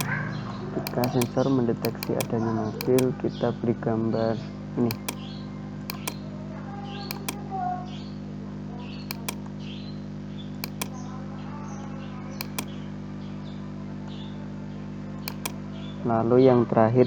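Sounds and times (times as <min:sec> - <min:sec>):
computer mouse double-clicks: 0:00.9 - 0:03.1, 0:04.9 - 0:05.2, 0:05.9 - 0:06.2, 0:07.1 - 0:07.4, 0:09.1 - 0:09.5, 0:10.6 - 0:11.0, 0:12.4 - 0:12.7, 0:15.2 - 0:15.6.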